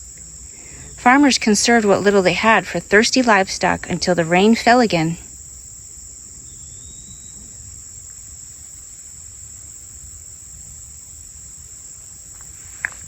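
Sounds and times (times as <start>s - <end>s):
crickets chorus: 0.0s - 13.0s
faint whistled bird note: 6.5s - 7.6s.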